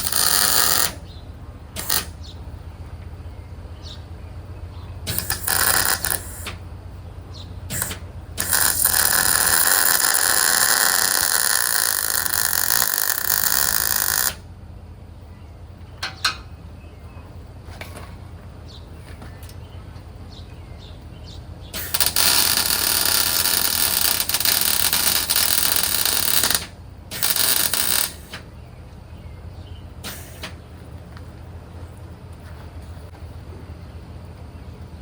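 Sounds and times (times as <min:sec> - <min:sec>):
arc welding crackling hiss: 0:00.0 - 0:01.0, 0:01.8 - 0:02.2, 0:05.1 - 0:06.6, 0:07.7 - 0:14.4, 0:21.7 - 0:28.5, 0:30.0 - 0:30.6
welding arc strikes: 0:00.0 - 0:01.0, 0:01.7 - 0:02.2, 0:05.0 - 0:06.6, 0:07.7 - 0:14.5, 0:21.7 - 0:28.5, 0:30.0 - 0:30.6.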